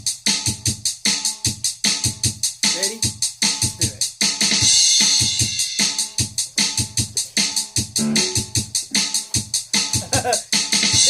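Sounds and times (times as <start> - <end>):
drum machine beat: 2.2 - 11.0.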